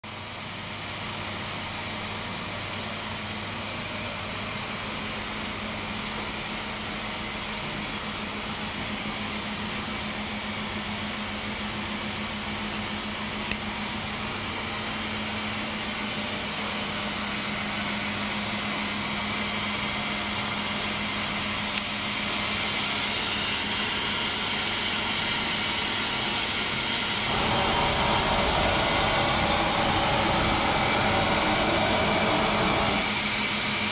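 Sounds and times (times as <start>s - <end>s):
machining centre running: 27.1s - 33.4s
low hum: 27.3s - 33.2s.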